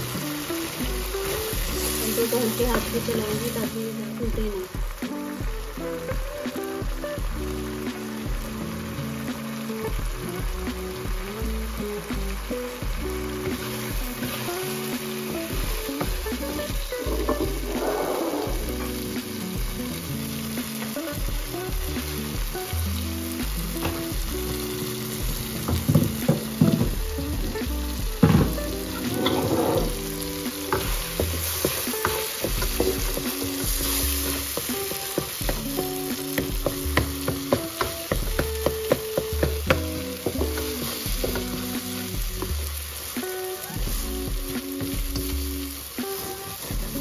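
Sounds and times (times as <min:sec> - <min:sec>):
background music with held notes: 0:00.0 - 0:47.0
food sizzling in a frying pan: 0:00.0 - 0:47.0
spoon scraping a pan: 0:28.2 - 0:42.1.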